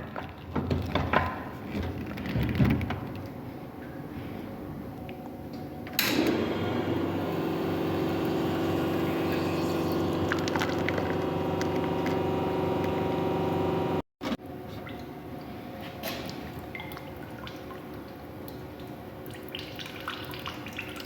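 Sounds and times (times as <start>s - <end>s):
espresso machine pump humming: 6.1s - 14.0s
liquid flowing: 7.4s - 13.1s.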